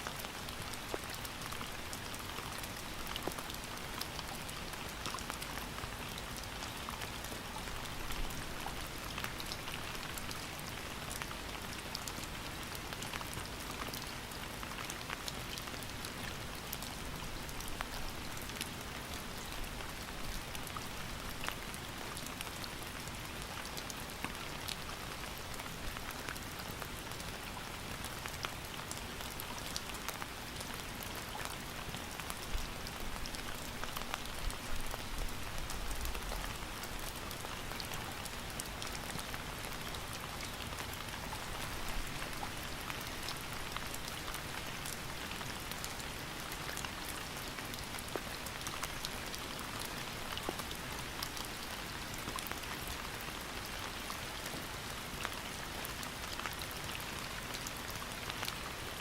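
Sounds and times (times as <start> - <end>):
raindrops ticking on a surface: 0.0 - 59.0
steady rain falling: 0.0 - 59.0.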